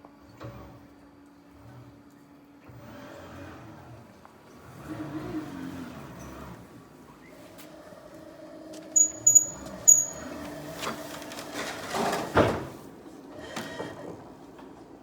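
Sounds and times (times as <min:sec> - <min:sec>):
short high-pitched chirps: 0:09.0 - 0:10.2.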